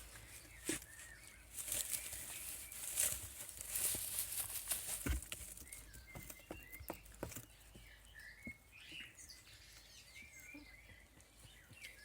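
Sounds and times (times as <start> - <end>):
animals rustling: 0.0 - 8.0.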